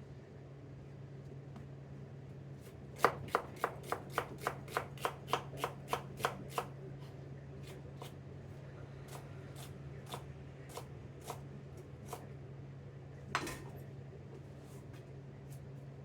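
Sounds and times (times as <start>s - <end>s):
knife slicing onion on board: 2.6s - 6.8s, 9.1s - 12.3s.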